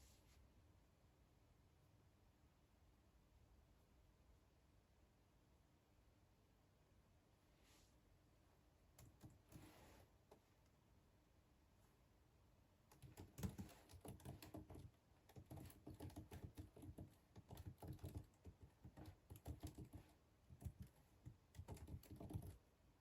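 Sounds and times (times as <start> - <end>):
faint keyboard typing: 8.9 - 10.5, 12.9 - 22.7.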